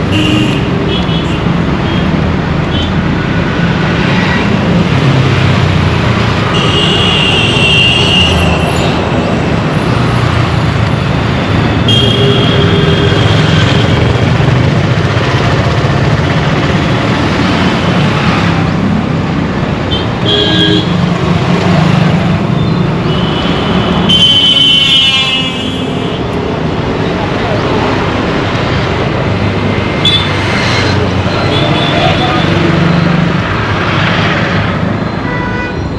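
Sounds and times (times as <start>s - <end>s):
road traffic rumble: 0.0s - 35.9s
vehicle horns honking: 6.5s - 9.0s, 11.8s - 14.0s, 19.9s - 21.0s, 23.0s - 26.2s, 35.2s - 35.9s.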